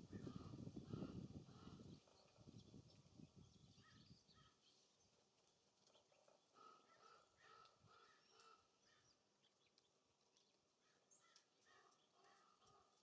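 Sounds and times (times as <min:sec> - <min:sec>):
faint bird calls: 0:05.9 - 0:09.2.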